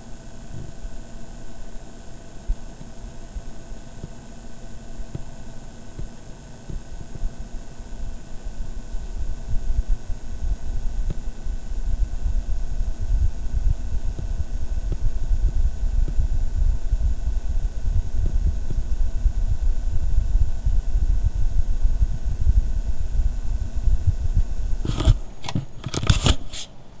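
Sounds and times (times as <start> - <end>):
computer power supply buzzing: 0.0 - 27.0
sharp clicks and knocks: 24.8 - 26.7.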